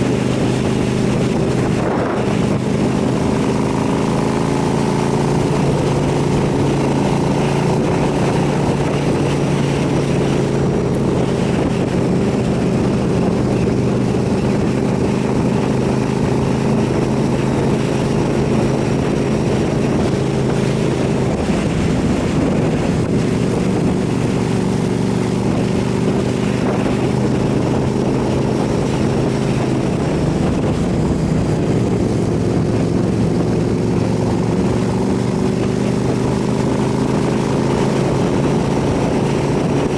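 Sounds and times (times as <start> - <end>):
motorcycle engine running: 0.0 - 39.9
wind rushing past: 0.0 - 39.9.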